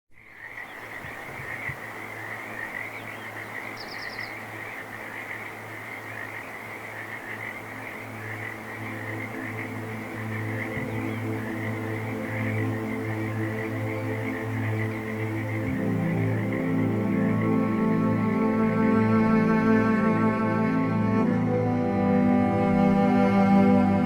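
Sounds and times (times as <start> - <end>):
chorus of frogs calling: 0.2 - 23.4
music: 6.9 - 24.0.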